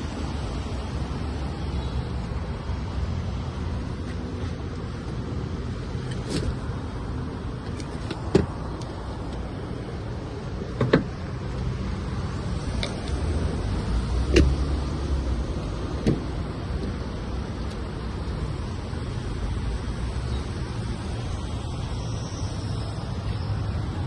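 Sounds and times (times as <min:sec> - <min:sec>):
car engine rumbling: 0:00.0 - 0:24.0.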